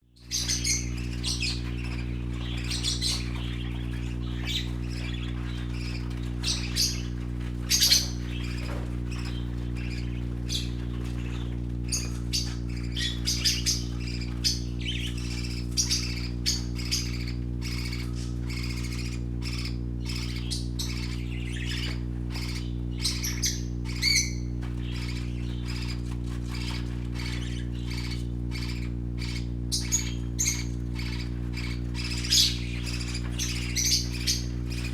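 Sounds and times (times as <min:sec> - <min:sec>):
steady low hum: 0:00.0 - 0:34.9
young parakeets chirping and squawking: 0:00.2 - 0:34.9.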